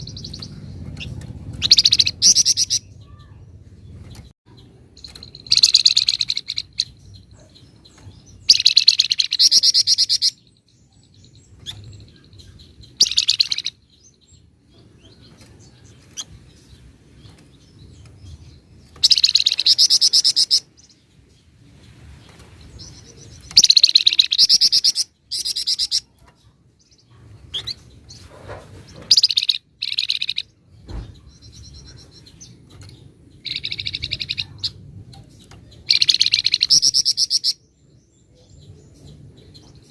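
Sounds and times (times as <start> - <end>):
songbird trilling: 0.0 - 3.4, 4.5 - 14.3, 19.0 - 21.0, 22.7 - 27.8, 29.0 - 30.6, 31.2 - 39.8.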